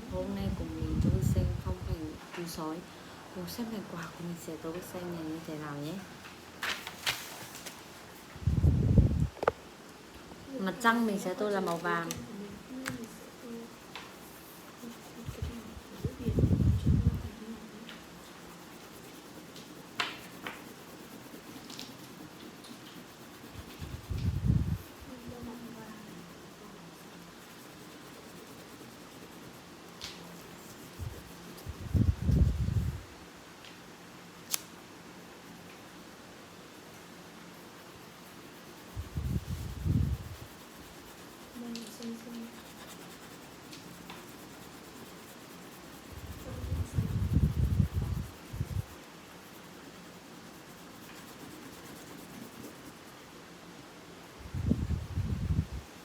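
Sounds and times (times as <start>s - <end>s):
colouring tool scratching paper: 10.8s - 33.0s, 37.4s - 53.2s.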